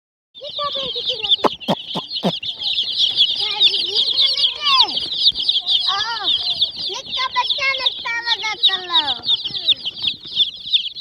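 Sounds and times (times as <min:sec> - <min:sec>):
chicks peeping: 0:00.5 - 0:11.0
low clucking calls: 0:01.4 - 0:02.4
sharp taps: 0:01.4 - 0:02.4.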